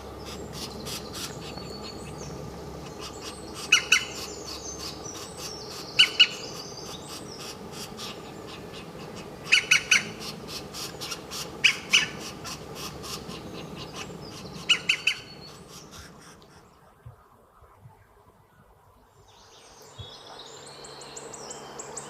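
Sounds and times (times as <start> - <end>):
steady background hum: 0.0 - 22.0
bird calling in high notes: 0.5 - 17.4.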